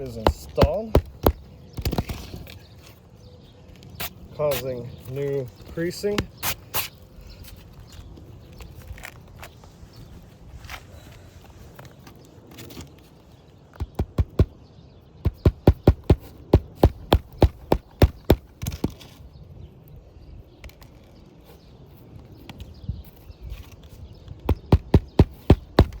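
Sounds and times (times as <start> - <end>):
hammer driving nails into shingle: 0.0 - 2.4, 13.8 - 14.6, 15.2 - 19.0, 24.5 - 26.0.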